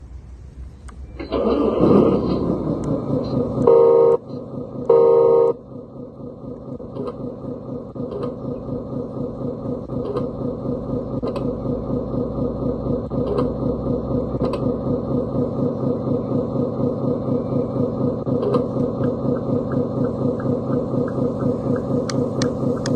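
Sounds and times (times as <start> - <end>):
simulated diesel engine idling: 0.0 - 22.9
truck horn blasts: 3.6 - 5.6.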